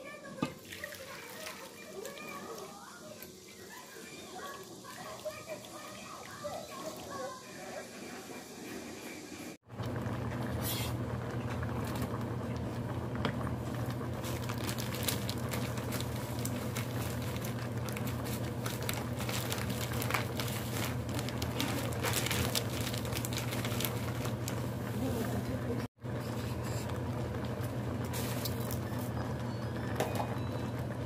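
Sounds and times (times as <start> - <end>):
soup bubbling and popping: 9.7 - 24.8.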